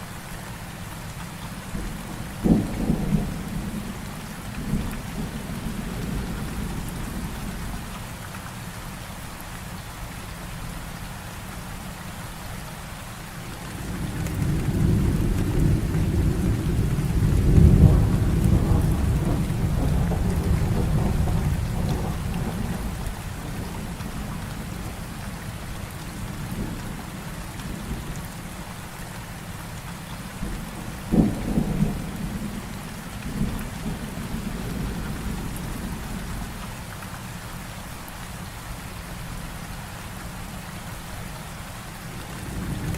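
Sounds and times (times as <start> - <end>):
heavy rain falling: 0.0 - 42.9
sharp crack of thunder: 1.8 - 4.0, 13.8 - 24.3, 30.4 - 32.6
low roll of thunder: 1.8 - 7.9, 13.6 - 28.2, 30.4 - 36.6, 42.2 - 42.9.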